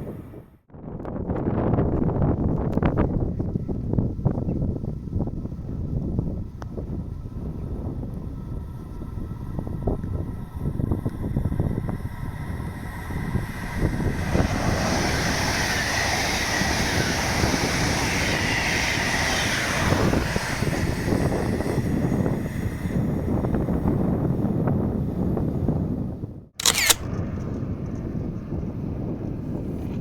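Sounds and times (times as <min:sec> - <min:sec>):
wind buffeting microphone: 0:00.0 - 0:30.0
train passing: 0:11.9 - 0:21.8.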